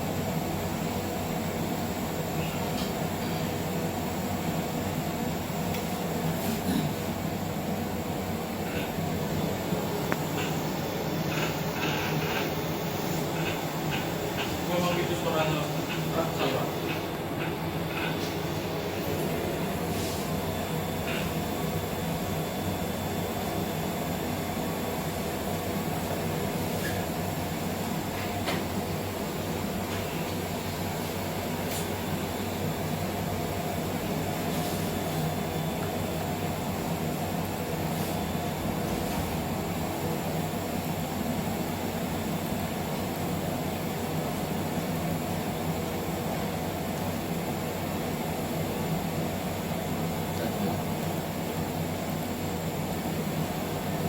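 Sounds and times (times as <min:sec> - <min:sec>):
machinery low hum: 0:00.0 - 0:54.0
fan-like rushing noise: 0:03.6 - 0:41.0.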